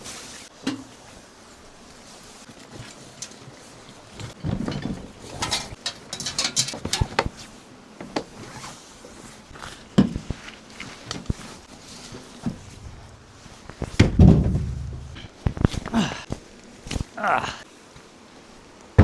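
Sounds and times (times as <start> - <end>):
objects being handled: 2.4 - 7.5, 8.1 - 17.5.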